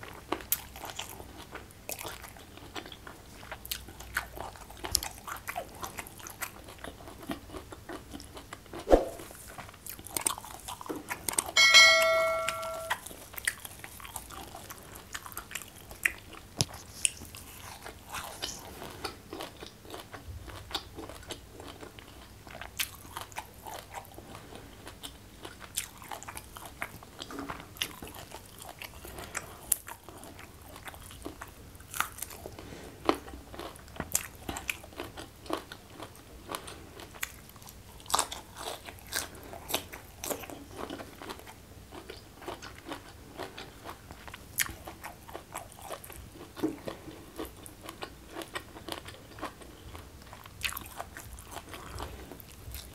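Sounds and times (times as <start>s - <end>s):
crunching and chewing food: 0.0s - 11.6s, 12.9s - 52.9s
tableware ringing when knocked: 11.6s - 13.0s.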